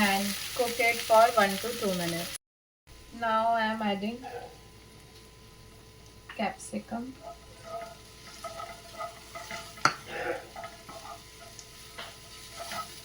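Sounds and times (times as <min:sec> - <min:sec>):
vegetables sizzling in oil: 0:00.0 - 0:02.4, 0:04.8 - 0:13.0
spoon scraping a pan: 0:07.2 - 0:13.0.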